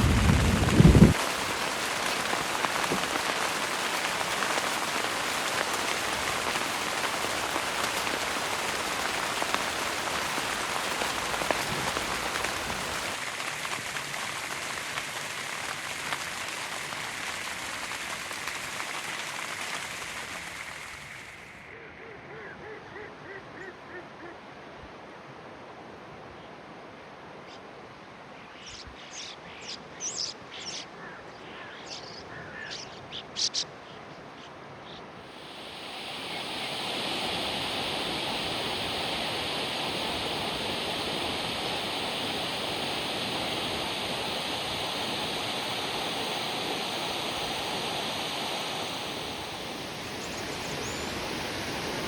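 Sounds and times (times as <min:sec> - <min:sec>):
running water rushing: 0:00.0 - 0:21.8, 0:35.2 - 0:52.0.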